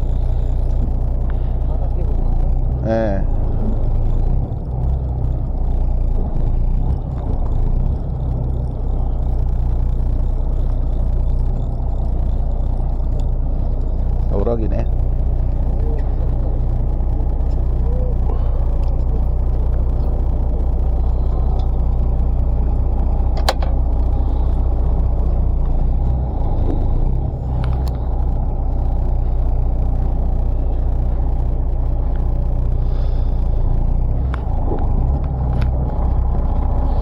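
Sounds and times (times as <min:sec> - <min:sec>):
boat engine rumbling: 0:00.0 - 0:37.0
sharp clicks: 0:23.2 - 0:25.8.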